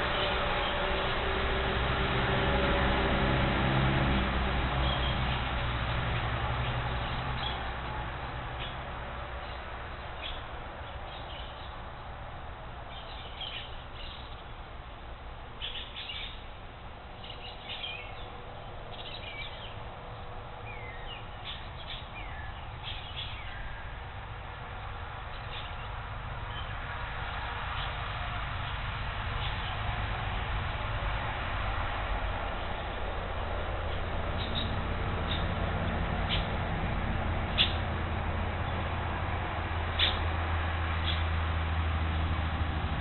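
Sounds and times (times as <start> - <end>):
background hiss and rumble: 0.0 - 43.0
birds chirping and whistling: 12.9 - 14.4, 15.6 - 16.4, 17.2 - 18.3, 20.7 - 23.8, 34.4 - 35.5, 36.3 - 36.5, 37.5 - 37.8, 40.0 - 40.2, 41.0 - 41.2.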